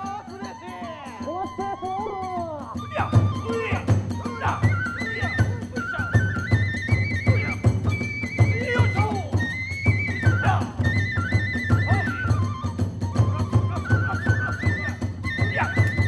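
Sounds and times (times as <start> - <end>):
small hand cymbals: 0.0 - 10.3
bamboo flute melody: 0.0 - 16.0
taiko drum beats: 2.7 - 16.0.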